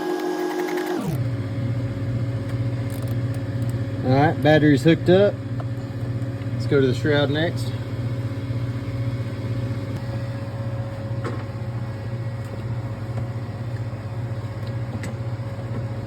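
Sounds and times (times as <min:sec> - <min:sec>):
vacuum pump humming: 0:00.0 - 0:16.0.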